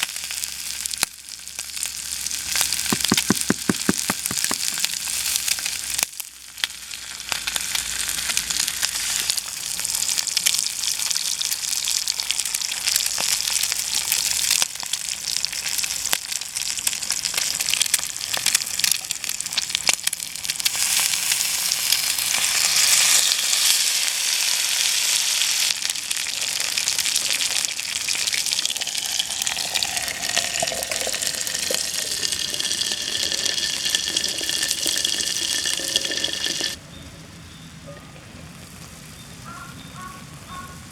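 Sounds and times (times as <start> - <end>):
crackles and pops: 0.0 - 23.7
bacon sizzling in a skillet: 0.0 - 36.8.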